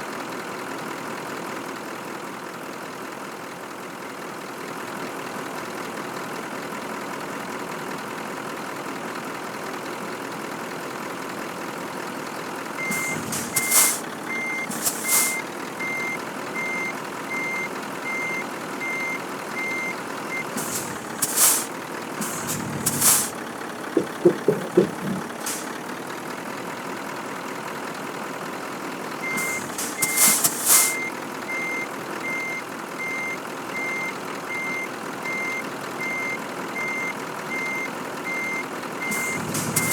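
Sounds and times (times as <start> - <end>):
diesel truck engine running: 12.2 - 39.9
air brake hisses: 12.8 - 15.5, 20.5 - 23.4, 24.0 - 25.8, 29.2 - 31.1, 39.1 - 39.9
reversing alarm beeping: 12.8 - 21.7, 29.2 - 39.9.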